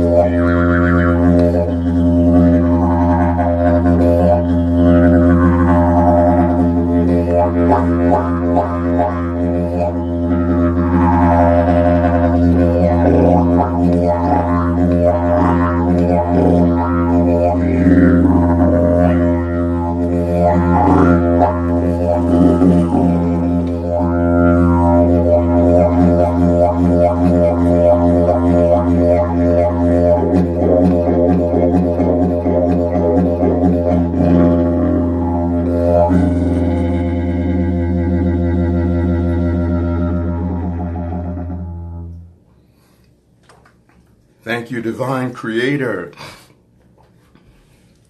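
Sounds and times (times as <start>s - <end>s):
didgeridoo drone: 0.0s - 42.6s.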